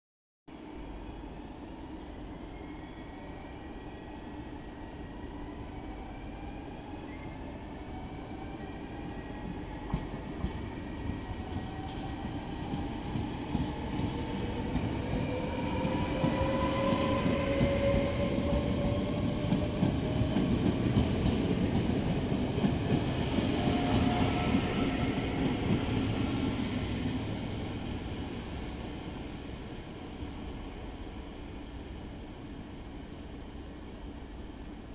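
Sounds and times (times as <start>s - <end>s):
train wheels rumbling and clattering: 9.4s - 28.6s.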